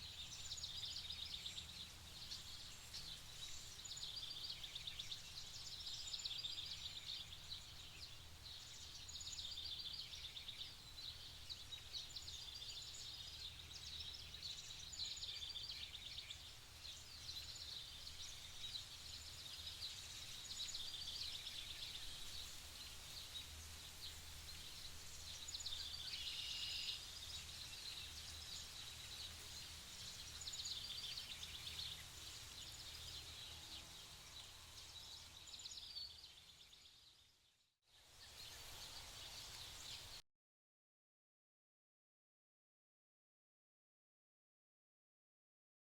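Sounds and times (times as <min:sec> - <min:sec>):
small birds chirping: 0:00.0 - 0:40.2.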